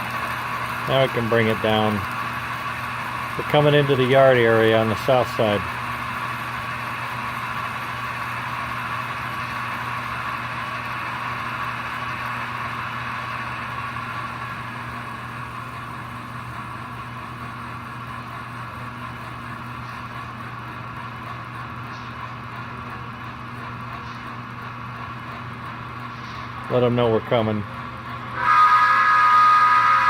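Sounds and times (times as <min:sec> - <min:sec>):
model train motor whir: 0:00.0 - 0:20.4, 0:28.2 - 0:30.0.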